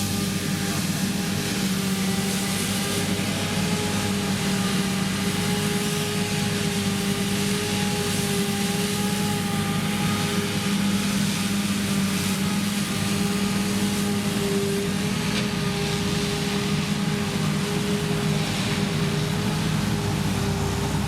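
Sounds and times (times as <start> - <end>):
forage harvester engine hum: 0.0 - 21.0
rushing noise of chopping crop: 0.0 - 21.0.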